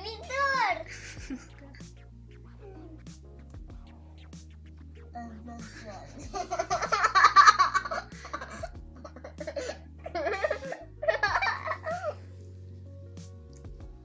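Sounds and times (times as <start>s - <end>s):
background music: 0.0s - 14.0s
girl laughing and giggling: 0.8s - 1.8s, 5.5s - 12.2s.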